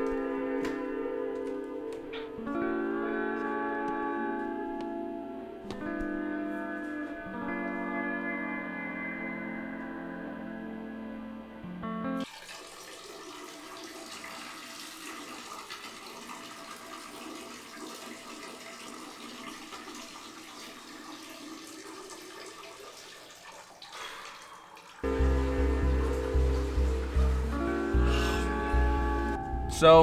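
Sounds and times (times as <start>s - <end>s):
music: 0.0s - 12.2s, 25.0s - 30.0s
rushing water: 12.2s - 29.4s.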